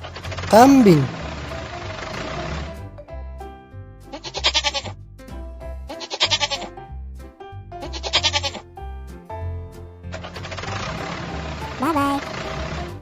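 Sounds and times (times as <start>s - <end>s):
background music with bass: 2.3s - 8.2s
goat bleating: 4.2s - 4.9s, 6.0s - 6.7s, 7.8s - 8.6s.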